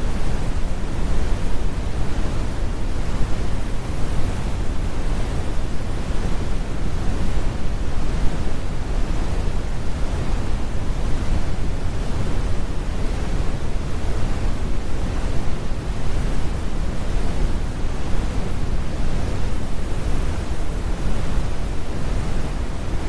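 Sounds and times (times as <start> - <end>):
brown noise rumbling hiss: 0.0 - 23.0.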